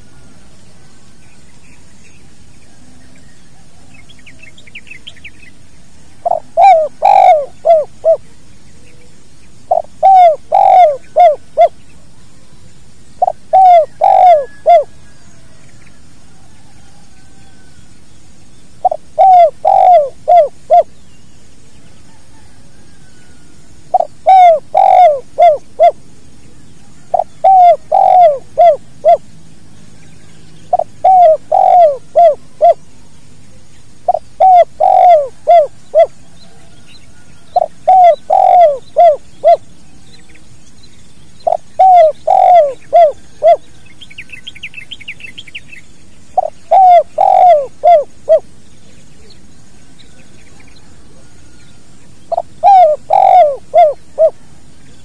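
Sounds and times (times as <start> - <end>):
faint high bird trill: 1.1 - 12.6, 13.2 - 55.0
dove cooing: 6.2 - 9.1, 9.7 - 12.5, 13.2 - 15.6, 18.8 - 21.0, 22.1 - 29.3, 30.7 - 39.7, 41.4 - 43.8, 46.4 - 48.5, 52.2 - 54.6.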